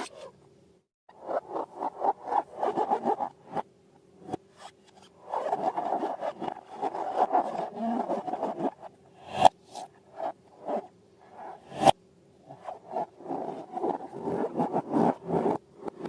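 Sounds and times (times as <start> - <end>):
faint steady hum: 0.0 - 16.0
balloons and slime squeaking: 4.6 - 9.5.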